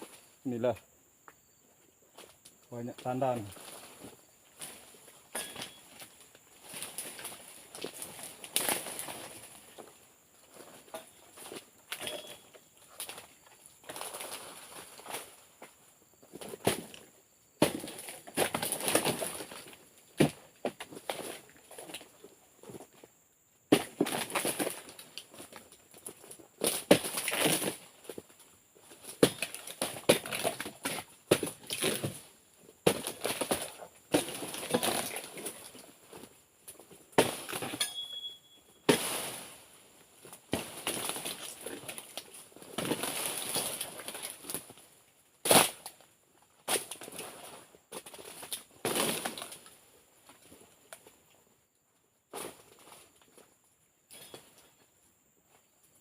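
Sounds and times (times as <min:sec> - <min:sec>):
fronds rustling and crashing: 0:03.0 - 0:15.8, 0:17.6 - 0:22.1, 0:23.7 - 0:37.9, 0:38.8 - 0:46.0, 0:46.6 - 0:51.0
chisel striking fronds: 0:29.2 - 0:32.2.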